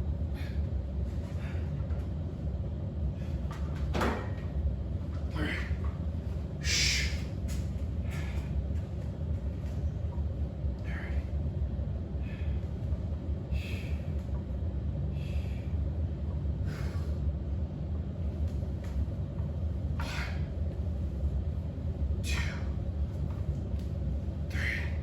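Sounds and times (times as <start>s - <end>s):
steady low rumble: 0.0s - 25.0s
person breathing out sharply: 6.6s - 7.3s.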